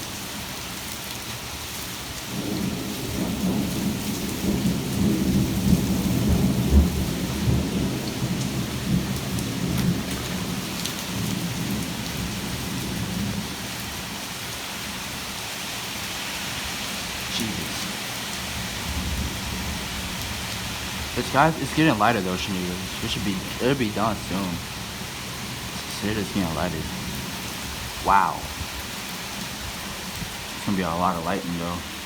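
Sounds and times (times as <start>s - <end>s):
steady rain: 0.0s - 32.0s
rolling thunder: 2.4s - 10.5s.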